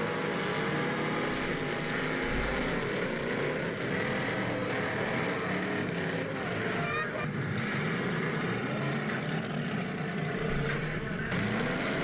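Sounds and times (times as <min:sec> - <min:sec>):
car engines revving: 0:00.0 - 0:12.0
arena noise: 0:01.2 - 0:07.4, 0:08.6 - 0:12.0.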